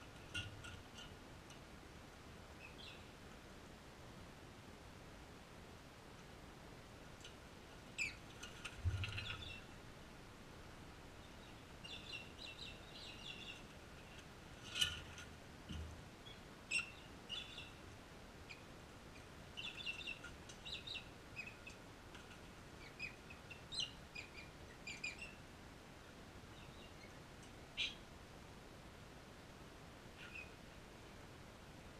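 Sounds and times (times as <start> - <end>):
birds chirping: 2.6 - 3.2, 7.9 - 9.8, 11.1 - 13.8, 16.2 - 17.8, 18.5 - 21.8, 22.7 - 25.4, 26.5 - 28.0.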